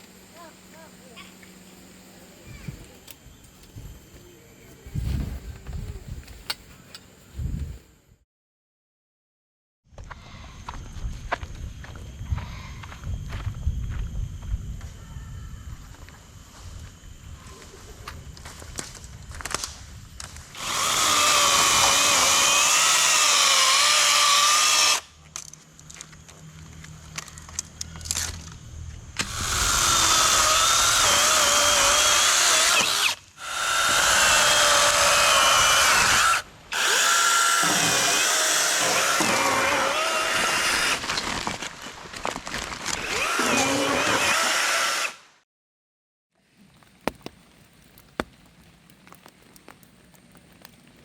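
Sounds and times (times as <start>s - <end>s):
power tool motor whining: 20.6s - 25.1s, 29.2s - 41.4s, 42.9s - 45.3s.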